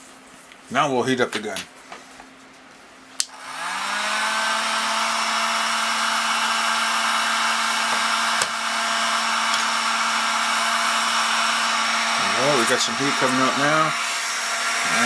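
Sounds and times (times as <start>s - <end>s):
heat gun fan humming: 3.2s - 15.0s.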